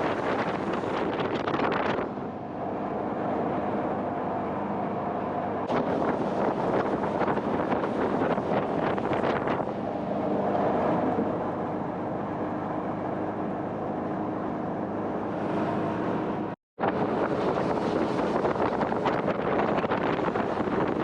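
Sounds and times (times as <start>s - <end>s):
rushing water: 0.0s - 4.3s, 5.3s - 12.6s, 15.2s - 21.0s
jet boat engine at speed: 0.0s - 21.0s
wind buffeting microphone: 0.0s - 21.0s.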